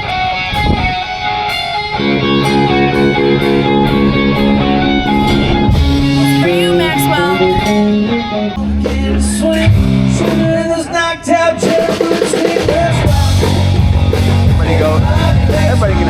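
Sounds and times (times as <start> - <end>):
rock music with guitar and drums: 11.6 - 16.0.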